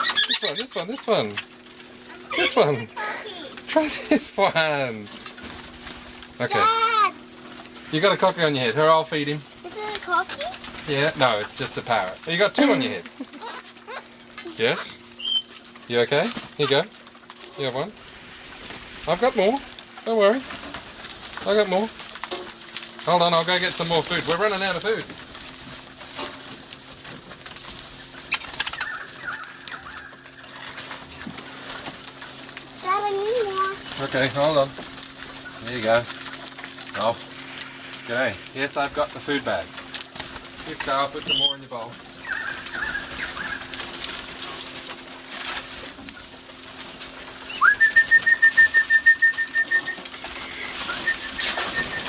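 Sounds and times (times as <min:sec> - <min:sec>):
parrot warbling call: 0:00.0 - 0:01.0, 0:15.2 - 0:15.6, 0:28.3 - 0:30.7, 0:42.2 - 0:43.8
wings fluttering: 0:00.0 - 0:52.0
bird alarm call whistles: 0:15.2 - 0:15.5, 0:41.3 - 0:41.6, 0:47.5 - 0:50.0.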